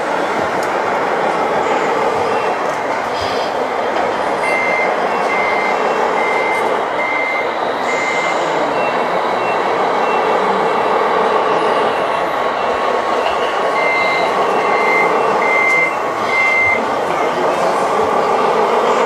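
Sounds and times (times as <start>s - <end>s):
reversing beeper beeps: 4.4s - 12.8s, 13.7s - 16.9s.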